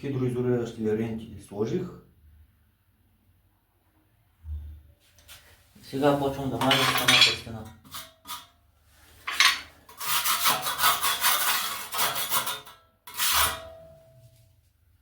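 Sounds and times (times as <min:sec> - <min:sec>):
steel trowel scraping adhesive: 0:09.2 - 0:13.8
trowel metallic ring: 0:09.3 - 0:14.4.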